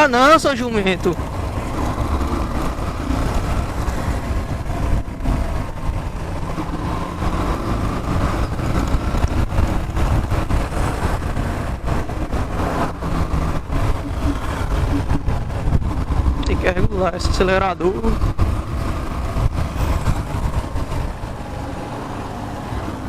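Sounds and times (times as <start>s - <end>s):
road noise: 0.0s - 23.0s
motorcycle engine running: 0.8s - 16.9s.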